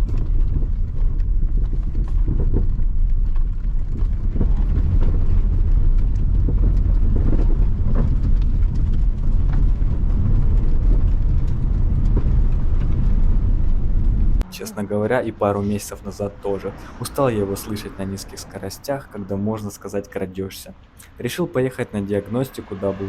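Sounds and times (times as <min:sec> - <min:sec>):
suspension knocking: 0:00.0 - 0:14.4
low road rumble: 0:00.0 - 0:23.0.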